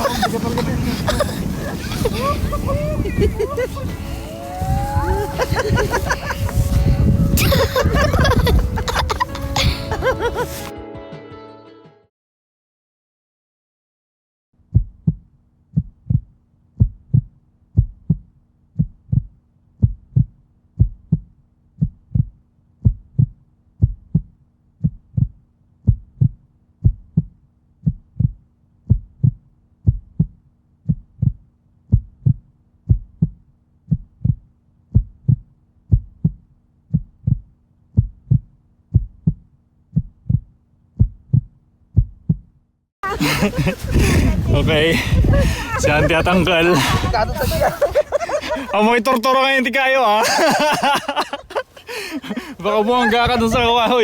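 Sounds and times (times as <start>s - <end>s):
heartbeat thumps: 0.0s - 10.7s, 14.7s - 42.5s, 43.1s - 48.8s.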